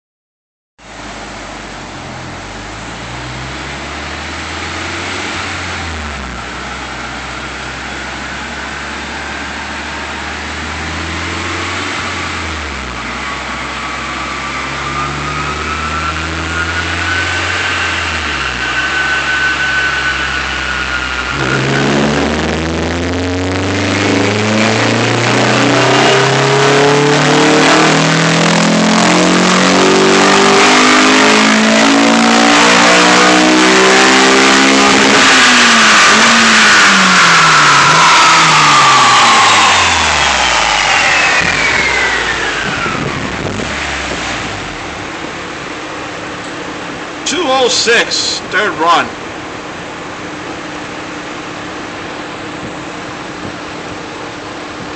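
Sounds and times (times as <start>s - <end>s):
car engine revving: 0.9s - 54.9s
thin whine: 12.9s - 26.4s, 37.2s - 45.7s.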